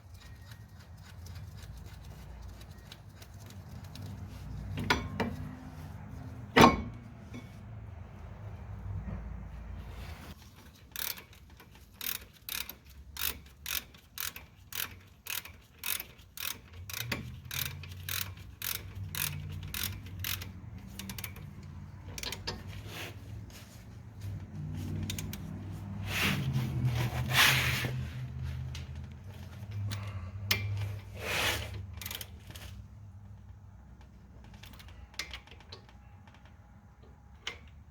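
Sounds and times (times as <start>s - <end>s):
ratchet wrench clicking: 0.1s - 4.2s, 10.6s - 22.8s, 25.0s - 25.5s, 31.9s - 32.6s.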